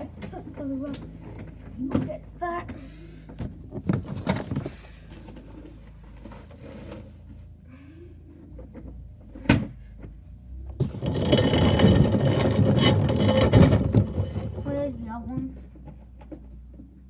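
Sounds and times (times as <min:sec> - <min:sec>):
continuous rattling: 0:10.8 - 0:16.4.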